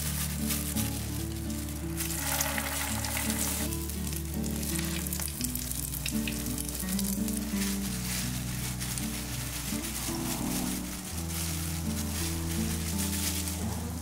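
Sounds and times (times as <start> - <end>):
background music: 0.0 - 14.0
food frying in hot oil: 1.9 - 7.6.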